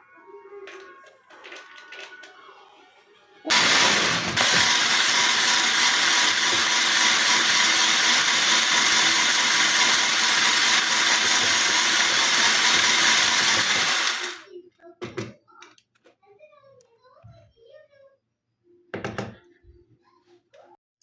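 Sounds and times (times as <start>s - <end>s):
electric motor whirring and grinding: 3.5s - 14.4s.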